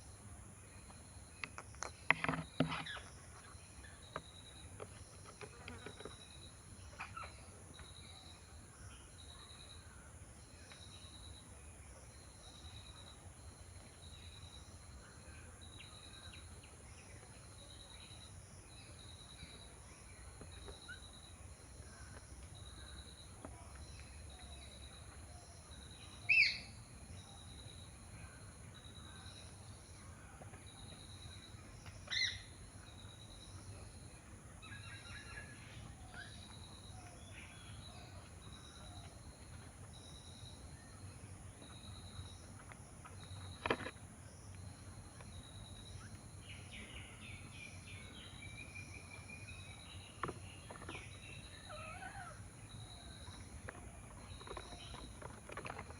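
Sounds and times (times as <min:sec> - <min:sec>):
loud bird calls: 0:26.1 - 0:26.8, 0:30.9 - 0:33.1, 0:45.8 - 0:55.9.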